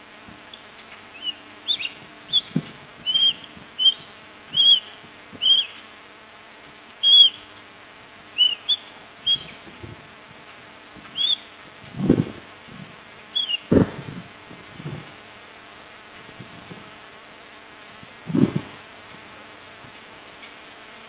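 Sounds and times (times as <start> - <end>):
bird chicks chirping: 0.4 - 5.9, 7.0 - 7.7, 8.3 - 10.0, 11.0 - 12.4, 13.2 - 14.1.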